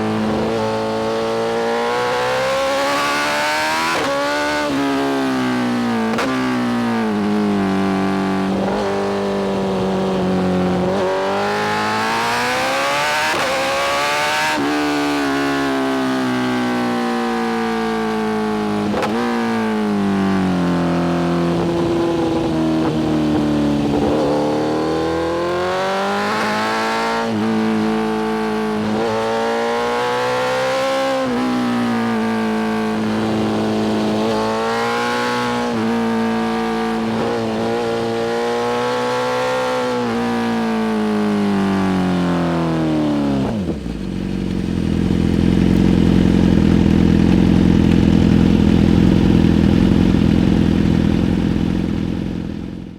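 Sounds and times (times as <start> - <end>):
motorcycle engine shifting gears: 0.0 - 52.9.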